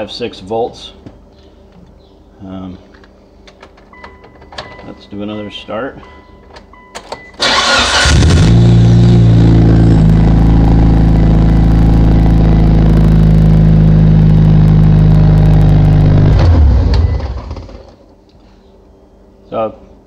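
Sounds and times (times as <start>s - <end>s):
car engine cranking and idling: 7.4s - 18.0s.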